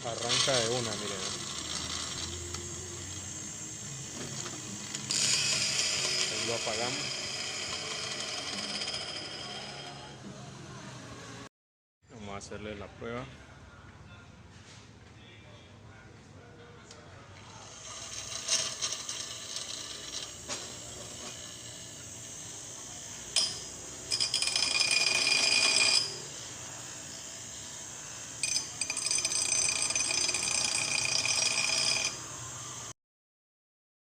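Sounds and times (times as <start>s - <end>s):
bench grinder screeching: 0.0s - 10.3s, 17.5s - 32.9s.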